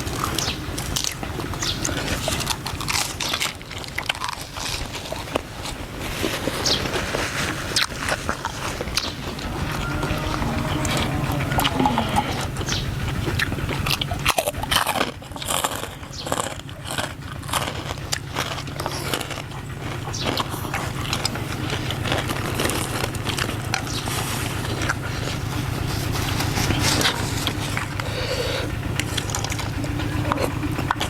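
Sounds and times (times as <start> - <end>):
crunchy chewing: 0.0 - 31.0
low hum: 6.9 - 16.0.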